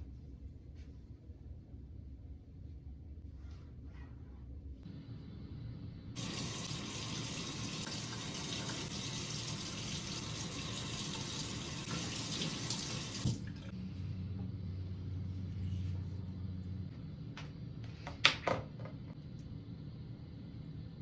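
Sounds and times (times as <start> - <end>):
water splashing into sink: 6.2 - 13.7.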